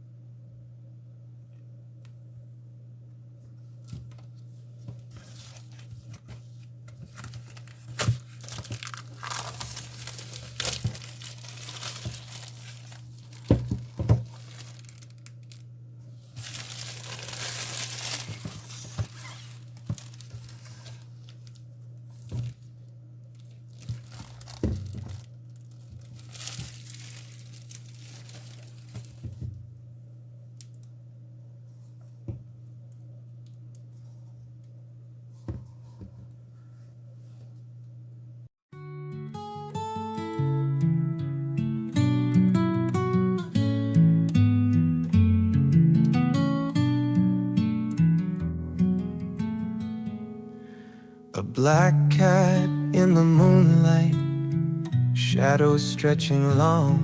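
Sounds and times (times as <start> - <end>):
steady low hum: 0.0 - 38.5
crinkling and tearing: 7.0 - 22.7, 23.3 - 29.5.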